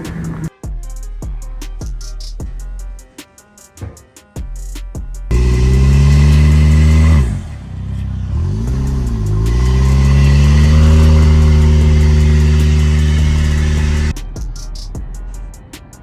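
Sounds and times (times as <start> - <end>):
drum-beat music: 0.0 - 5.3, 14.1 - 15.8
car engine revving: 5.3 - 14.1.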